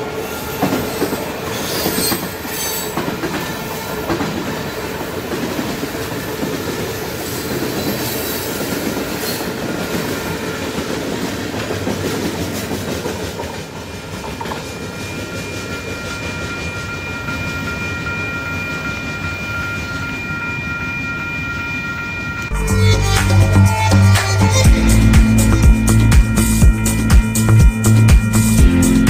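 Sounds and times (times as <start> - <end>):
steel wheels rumbling on rail: 0.0 - 22.5
wheels clacking over rail joints: 0.6 - 15.2
high steady squeal: 14.2 - 29.0.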